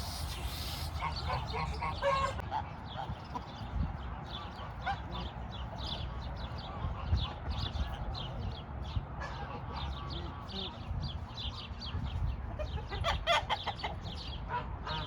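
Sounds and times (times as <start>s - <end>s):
poultry chirping: 0.0s - 2.4s
lower poultry call: 0.0s - 2.5s.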